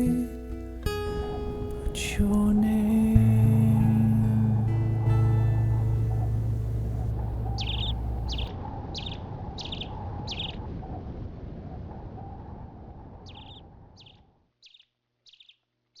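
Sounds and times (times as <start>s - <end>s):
low rushing background: 0.0s - 8.5s
bird high falling chirp: 3.3s - 10.6s.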